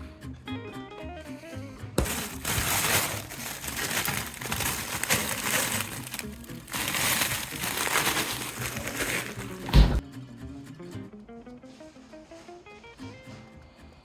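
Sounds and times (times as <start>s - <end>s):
background music: 0.0s - 14.0s
loud rustling crinkling: 2.0s - 10.0s.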